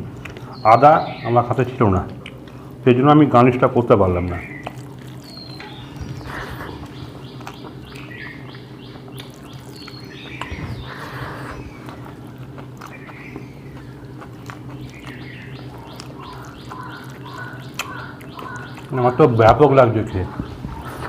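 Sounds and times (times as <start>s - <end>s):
small birds chirping: 0.0s - 21.0s
steady low hum: 0.0s - 21.0s.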